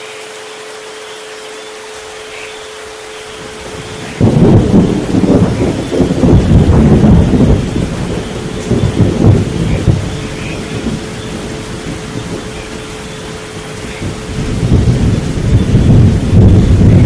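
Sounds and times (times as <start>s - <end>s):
steady rain: 0.0s - 17.0s
thunder rumbling: 3.3s - 17.0s.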